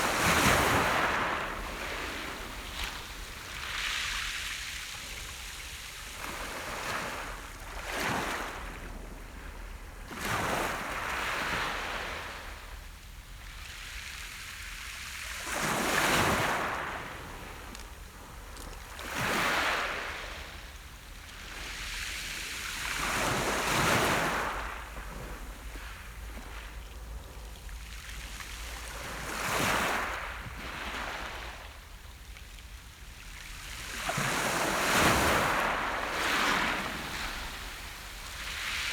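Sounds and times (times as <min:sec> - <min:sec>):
waves breaking on beach: 0:00.0 - 0:09.1, 0:21.4 - 0:27.2, 0:27.9 - 0:31.6, 0:33.4 - 0:38.9.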